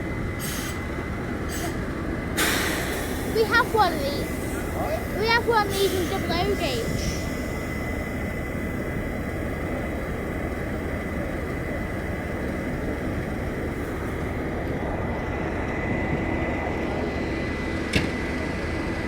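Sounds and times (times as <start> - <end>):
diesel locomotive engine rumble: 0.0 - 19.0.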